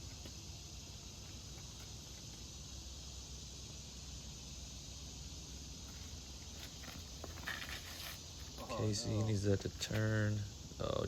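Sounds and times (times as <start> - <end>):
insects shrilling: 0.0 - 11.0.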